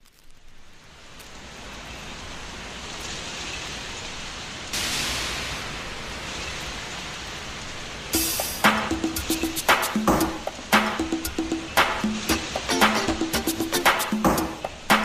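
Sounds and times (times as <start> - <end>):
rain hiss: 0.0 - 15.0.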